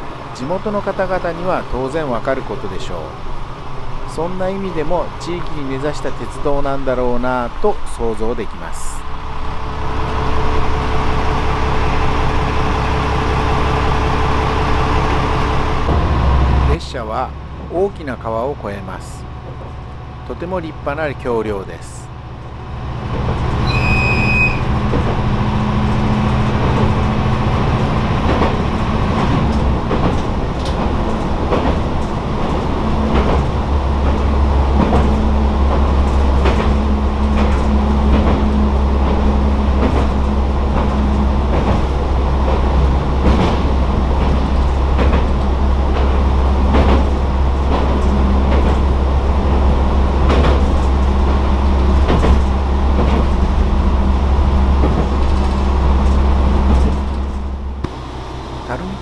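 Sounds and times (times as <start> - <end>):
railcar engine drone: 0.0 - 59.0
wheels clacking over rail joints: 9.3 - 58.3
short high beep: 23.6 - 24.7.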